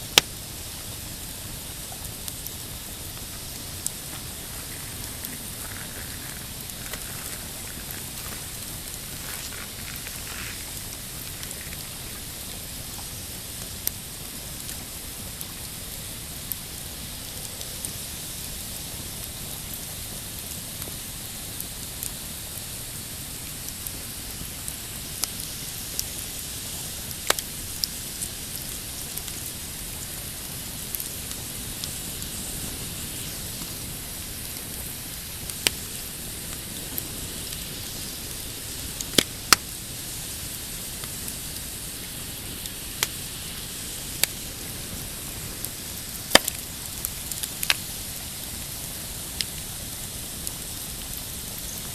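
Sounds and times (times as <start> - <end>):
campfire crackling and popping: 0.0 - 51.9
waves lapping on rocky shore: 0.8 - 13.4.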